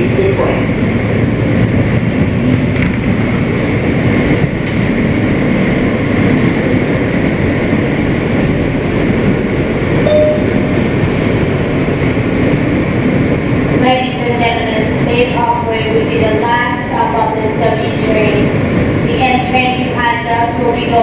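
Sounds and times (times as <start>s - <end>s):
subway car wheels rumbling: 0.0s - 21.0s
sharp click: 4.6s - 4.9s.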